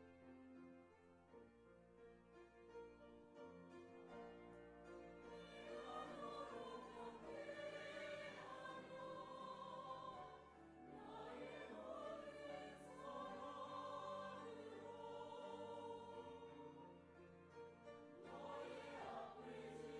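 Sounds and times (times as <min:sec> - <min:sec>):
church choir singing: 0:04.0 - 0:19.9.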